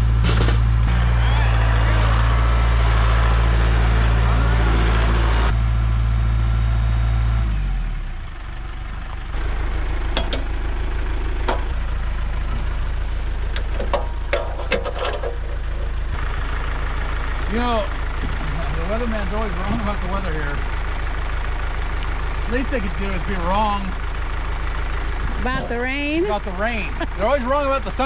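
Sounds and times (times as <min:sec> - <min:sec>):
engine running and idling: 0:00.0 - 0:28.0
sharp knocks and clanks: 0:10.1 - 0:10.5, 0:11.4 - 0:11.8, 0:13.5 - 0:15.9.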